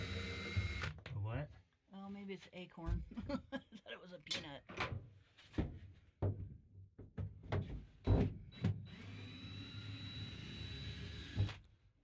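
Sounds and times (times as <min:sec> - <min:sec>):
cordless drill whining: 0:00.0 - 0:00.9, 0:08.5 - 0:11.6.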